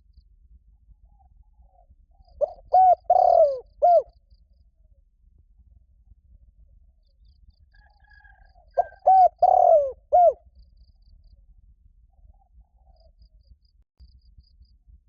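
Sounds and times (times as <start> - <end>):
dove cooing: 2.4 - 4.1, 8.2 - 10.4.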